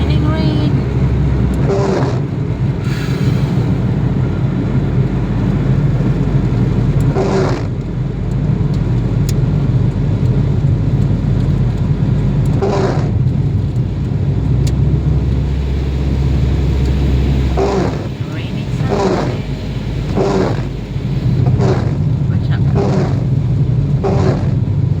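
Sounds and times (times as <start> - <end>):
car engine and road noise: 0.0 - 25.0
rain wash: 0.0 - 25.0.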